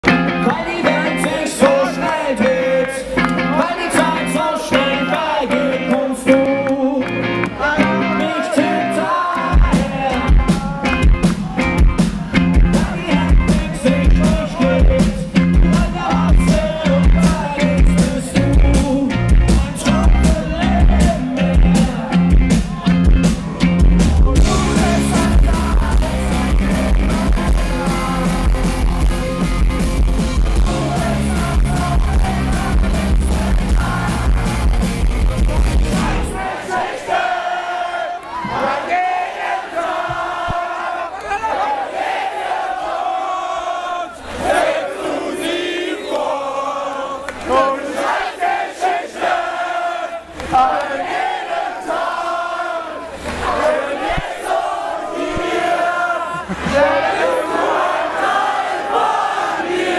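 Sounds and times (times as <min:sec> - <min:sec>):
live rock band playing: 0:00.0 - 0:36.4.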